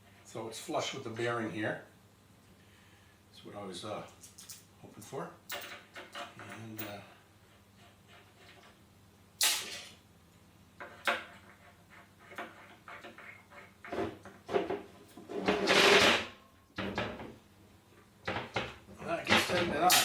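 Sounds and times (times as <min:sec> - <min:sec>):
metal parts clunking and clattering: 0:05.5 - 0:07.0, 0:09.4 - 0:10.0, 0:10.8 - 0:17.4, 0:18.2 - 0:20.0.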